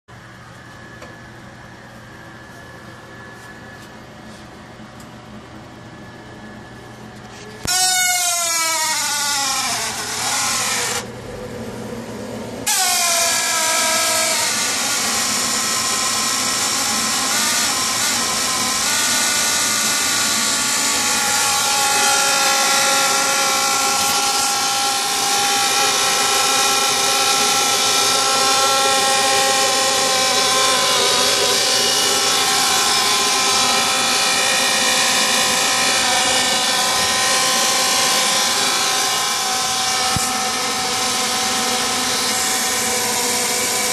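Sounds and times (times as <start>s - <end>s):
gas furnace whining hum: 0.1s - 8.2s, 9.5s - 14.0s.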